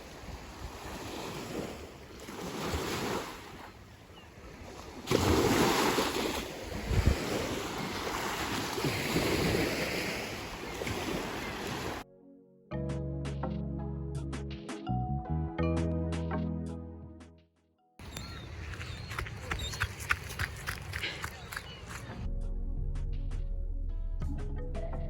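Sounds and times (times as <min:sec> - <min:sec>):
ocean waves washing in: 0:04.5 - 0:12.0
wind buffeting microphone: 0:06.5 - 0:12.0.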